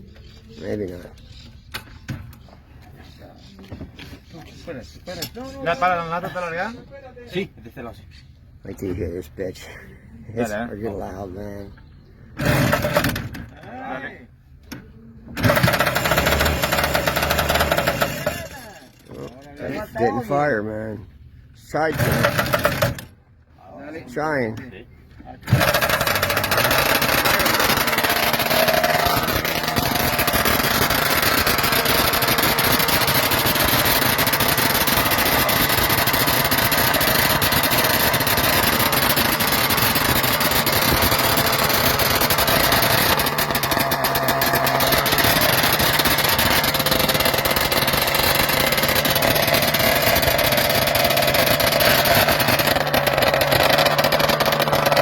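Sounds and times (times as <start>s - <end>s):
failed engine starting attempts: 12.4s - 13.5s, 15.2s - 19.4s, 21.8s - 23.2s, 25.4s - 55.0s
two-stroke motorcycle engine running: 15.4s - 19.3s, 22.0s - 23.1s, 25.5s - 55.0s.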